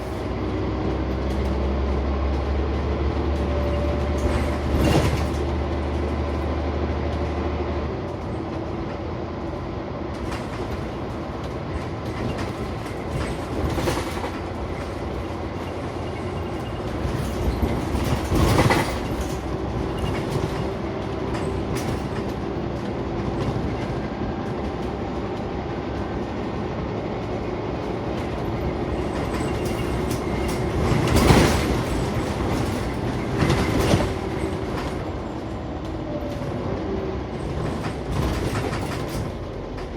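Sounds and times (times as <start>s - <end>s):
bus engine hum: 0.0s - 39.9s
road noise: 0.0s - 39.9s
knocks and rattles: 16.4s - 23.8s, 28.0s - 35.1s.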